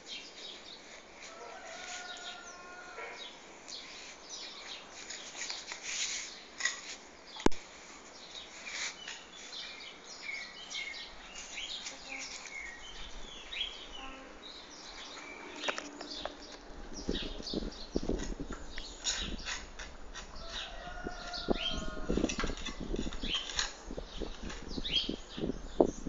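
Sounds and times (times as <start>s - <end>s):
birds chirping: 8.1s - 26.0s.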